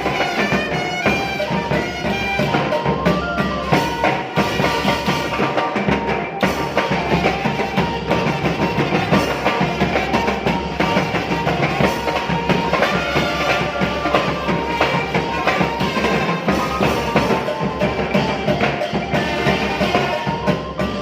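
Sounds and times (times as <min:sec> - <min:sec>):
brass band playing: 0:00.0 - 0:21.0
steady drumming: 0:00.0 - 0:21.0
sustained horn notes: 0:10.9 - 0:17.3.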